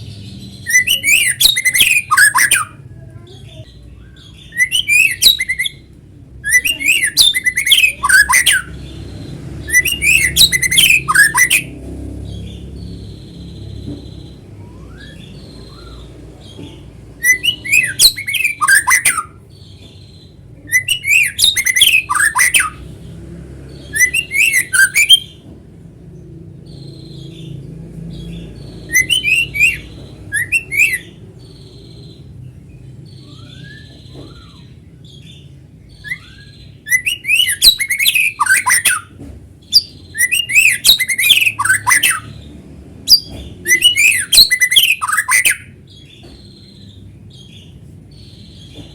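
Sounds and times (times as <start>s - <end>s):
bird singing whistled phrases: 0.6s - 2.8s, 4.0s - 8.8s, 9.6s - 11.7s, 14.2s - 16.2s, 17.2s - 19.4s, 20.6s - 22.8s, 23.8s - 25.4s, 28.8s - 31.2s, 33.0s - 39.1s, 39.7s - 42.4s, 43.1s - 46.1s.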